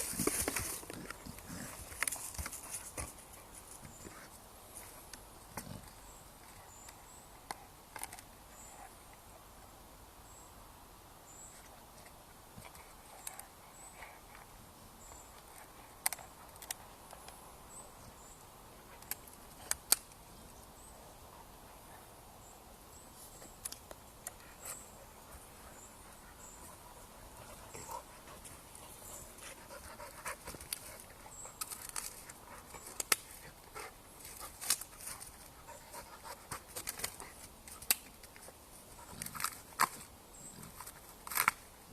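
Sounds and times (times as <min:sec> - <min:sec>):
dog panting: 0:24.4 - 0:31.6.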